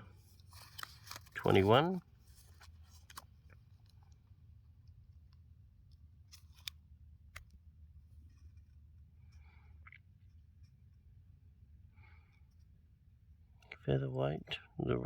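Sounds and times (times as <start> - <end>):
paper logbook rustling: 0.2 - 4.0, 6.2 - 7.6.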